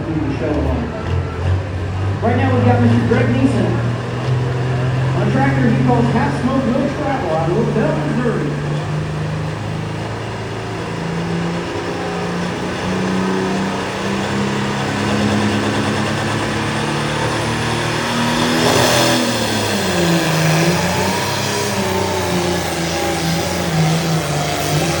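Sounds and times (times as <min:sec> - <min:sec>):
tractor engine running hard: 0:00.0 - 0:25.0
rush of noise: 0:14.6 - 0:25.0.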